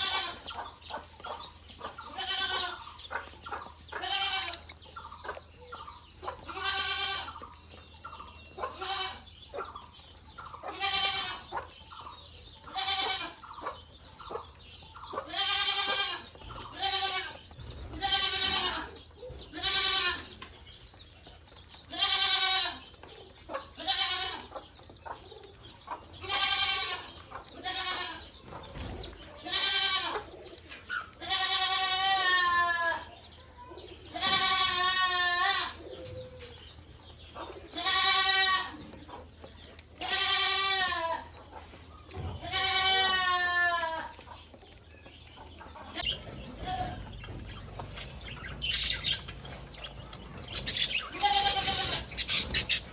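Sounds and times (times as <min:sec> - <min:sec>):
animal calling: 0:46.0 - 0:52.9.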